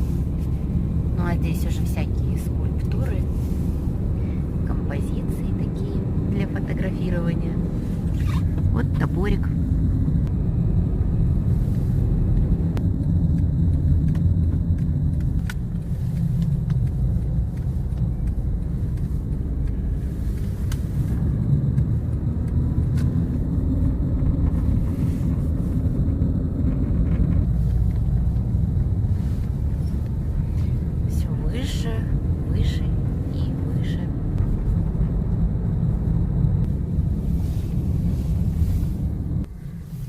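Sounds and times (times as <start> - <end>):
car engine and tyres rumbling: 0.0 - 40.0.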